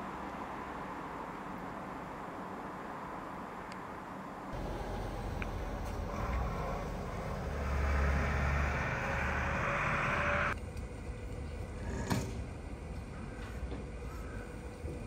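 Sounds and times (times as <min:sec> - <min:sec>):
street background: 0:00.0 - 0:15.0
vehicle driving past: 0:04.5 - 0:10.6.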